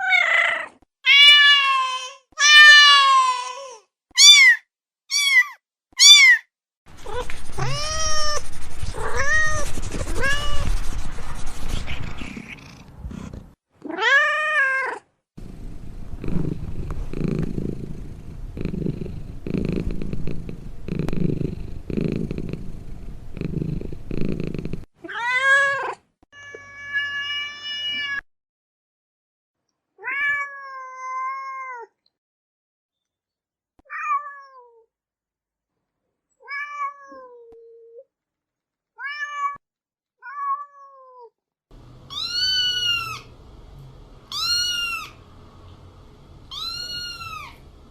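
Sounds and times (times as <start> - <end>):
cat meowing: 0.0 - 10.7, 13.8 - 15.0, 42.0 - 43.3, 44.3 - 45.2, 46.5 - 47.7
kitten mewing: 6.0 - 10.7, 42.1 - 43.3, 44.3 - 45.2, 46.5 - 47.7
cat purring rumble: 6.9 - 13.6, 15.4 - 24.9.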